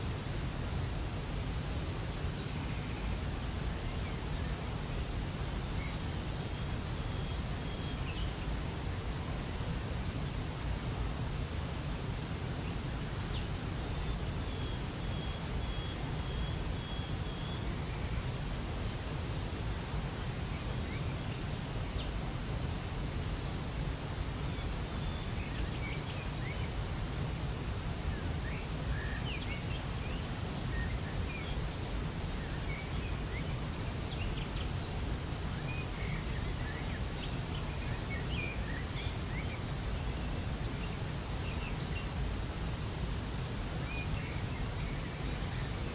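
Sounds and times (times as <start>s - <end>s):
small birds chirping: 12.1s - 27.2s, 27.9s - 45.9s.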